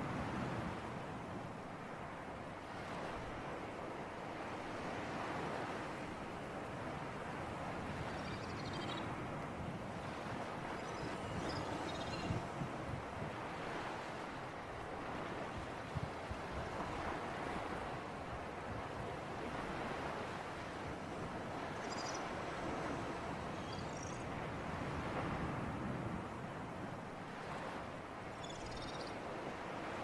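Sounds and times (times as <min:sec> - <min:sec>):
sea breeze: 0:00.0 - 0:30.0
faint high chirps: 0:08.1 - 0:09.1, 0:10.8 - 0:12.5, 0:21.8 - 0:22.3, 0:23.6 - 0:24.2, 0:28.4 - 0:29.2.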